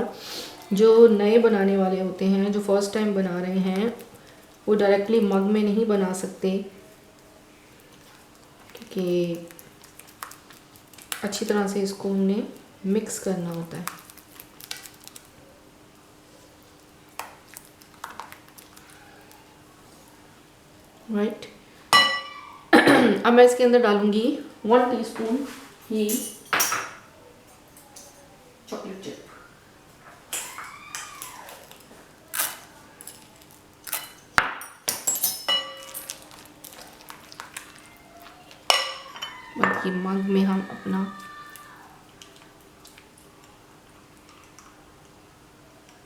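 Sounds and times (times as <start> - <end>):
spoon clinking against a dish: 22.0 - 22.4, 33.9 - 36.2, 38.7 - 40.1.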